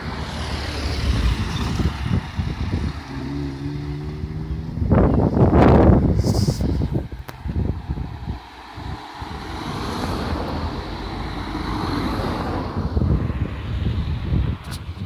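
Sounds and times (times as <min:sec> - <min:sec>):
car with loud exhaust driving past: 0:00.0 - 0:14.6.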